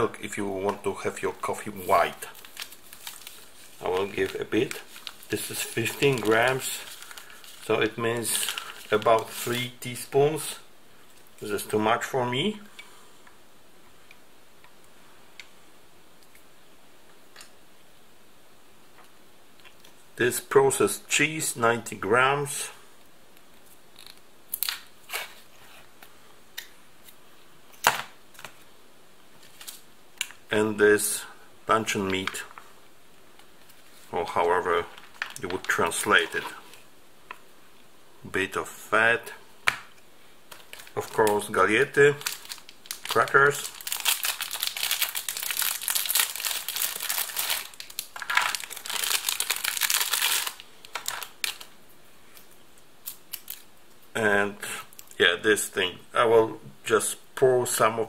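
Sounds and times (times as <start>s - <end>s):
packaging clicks and crinkles: 1.8s - 9.6s, 40.5s - 51.7s, 52.4s - 53.7s.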